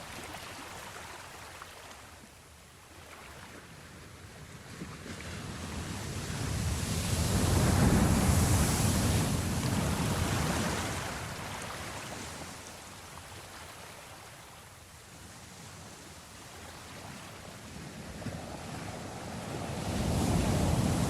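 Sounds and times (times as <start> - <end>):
steady surf: 5.3 - 13.0, 16.5 - 21.0
ocean wave breaking: 5.5 - 12.6, 18.2 - 21.0.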